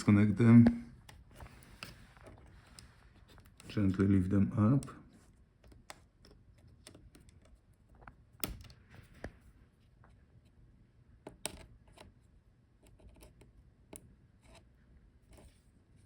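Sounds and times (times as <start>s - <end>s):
small connector clicks and taps: 5.6s - 8.8s, 11.2s - 12.1s.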